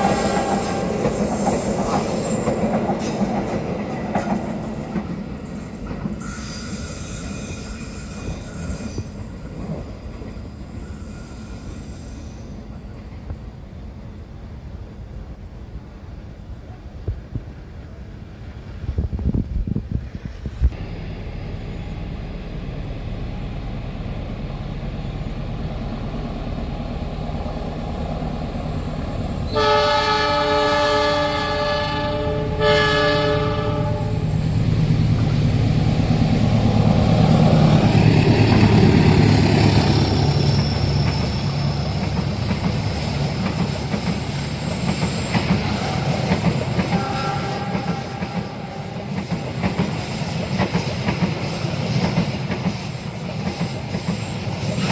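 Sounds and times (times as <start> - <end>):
wheels clacking on rails: 0.0 - 11.0, 24.7 - 54.9
train rumbling past: 0.0 - 54.9
train horn blasts: 29.5 - 34.4, 46.8 - 49.1.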